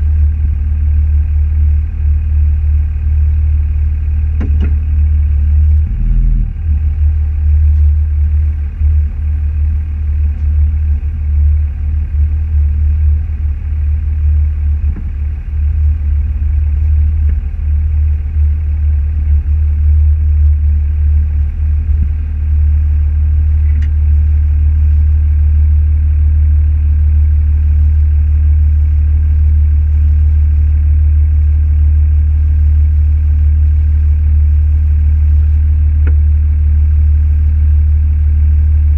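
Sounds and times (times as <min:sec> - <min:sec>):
car engine rumble: 0:00.0 - 0:26.9, 0:32.0 - 0:38.9
road noise inside car: 0:00.0 - 0:26.9.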